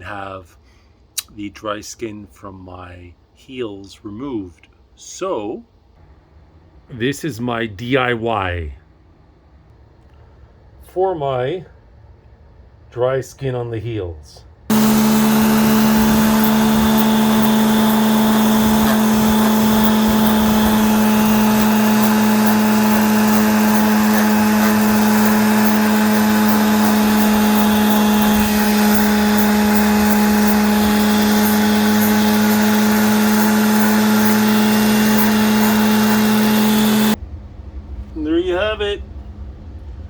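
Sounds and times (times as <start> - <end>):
electric sander humming: 14.7 - 37.2.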